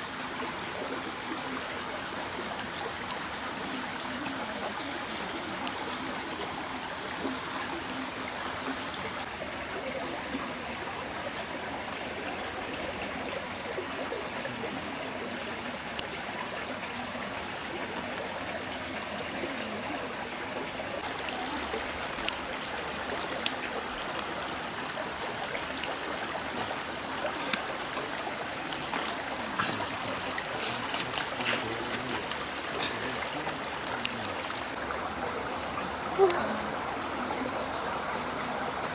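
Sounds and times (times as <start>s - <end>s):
stream splashing over rocks: 0.0s - 38.9s.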